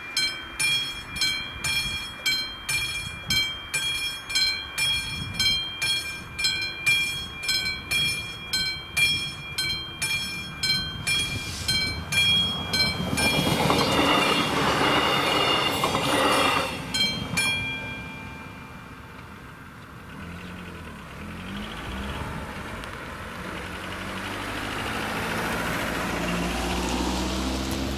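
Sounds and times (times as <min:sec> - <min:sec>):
level crossing warning bell: 0:00.0 - 0:19.2
train rushing past: 0:00.0 - 0:19.6.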